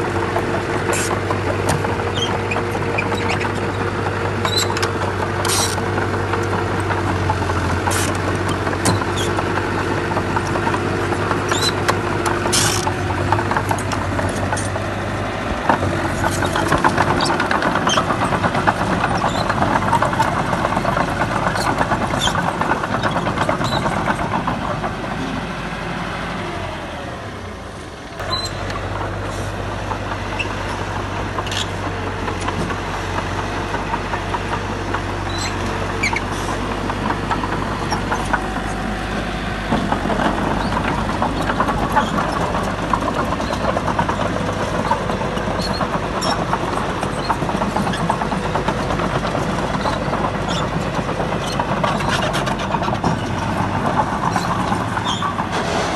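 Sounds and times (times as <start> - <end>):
heavy diesel engine running: 0.0 - 55.9
clanks and knocks: 0.3 - 15.0, 15.6 - 25.2, 29.8 - 55.9.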